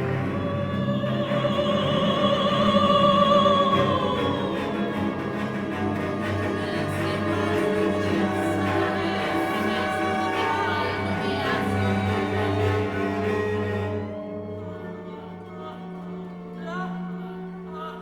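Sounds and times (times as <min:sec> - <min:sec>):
operatic voice singing: 0:00.0 - 0:13.2
orchestral accompaniment: 0:00.0 - 0:17.8.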